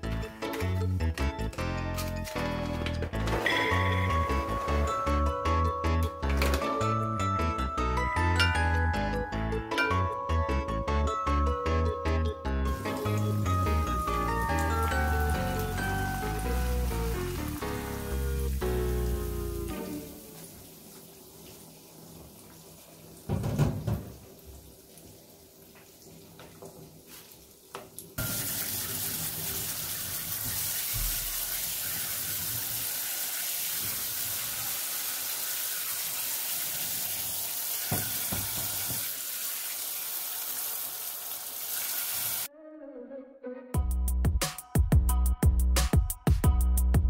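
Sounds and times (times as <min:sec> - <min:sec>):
tap water running into colander: 0:12.7 - 0:42.5.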